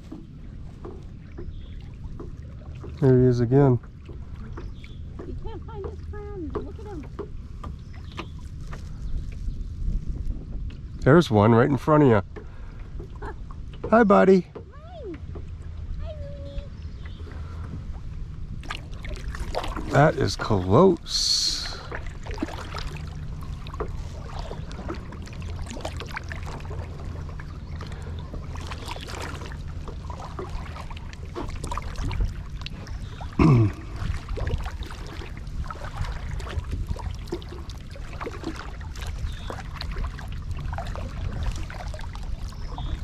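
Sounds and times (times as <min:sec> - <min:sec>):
paddle strokes in water: 0:00.0 - 0:43.0
water trickling and lapping: 0:00.0 - 0:43.0.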